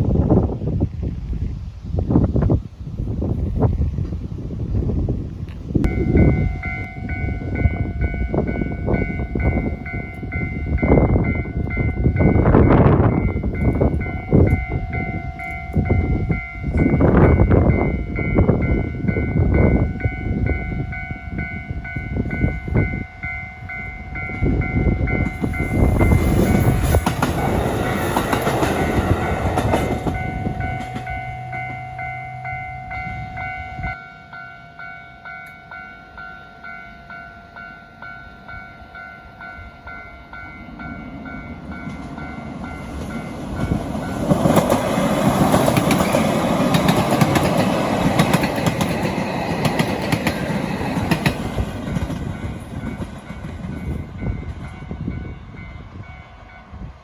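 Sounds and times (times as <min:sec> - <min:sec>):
level crossing alarm ringing: 0:05.9 - 0:26.4, 0:27.0 - 0:44.2
train wheels clattering over joints: 0:25.2 - 0:31.8, 0:41.6 - 0:54.7.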